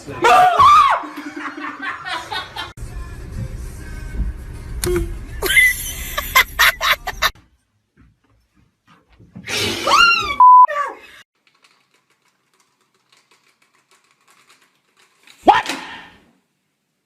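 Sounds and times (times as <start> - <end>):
censor bleep tone: 10.4 - 10.7.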